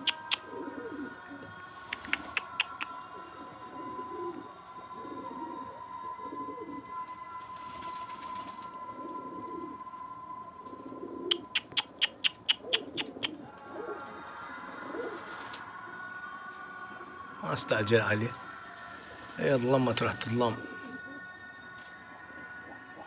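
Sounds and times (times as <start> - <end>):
sharp clicks: 0.0 - 0.4, 1.9 - 3.0, 11.3 - 13.3
pigeons cooing: 0.0 - 7.2, 7.8 - 10.0, 10.6 - 16.2, 16.9 - 21.4, 22.2 - 23.0.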